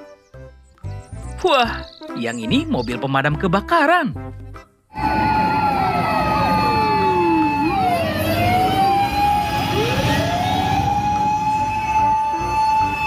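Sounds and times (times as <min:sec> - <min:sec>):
fire truck siren wailing: 0:04.9 - 0:13.0
overlapping siren tones: 0:04.9 - 0:13.0.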